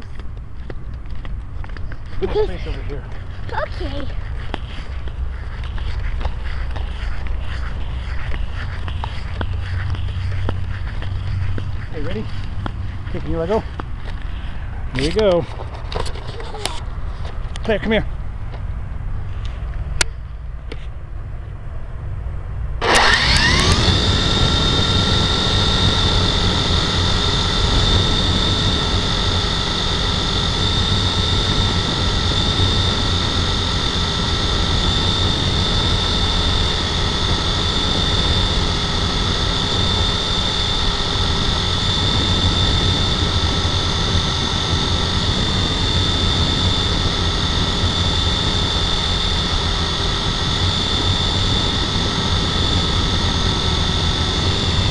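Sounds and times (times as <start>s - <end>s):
model helicopter motor and rotor whine: 1.7s - 16.9s, 22.8s - 54.9s.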